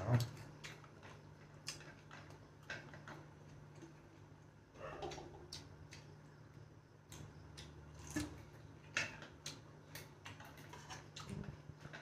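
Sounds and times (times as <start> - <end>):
chewing smacks and clicks: 0.0 - 3.3, 9.0 - 12.0.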